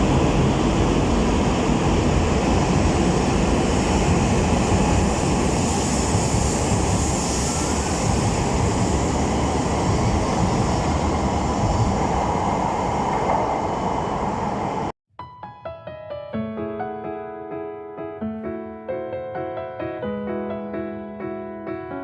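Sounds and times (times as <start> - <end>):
train wheels rumbling: 0.0 - 14.9
piano background music: 15.1 - 22.0.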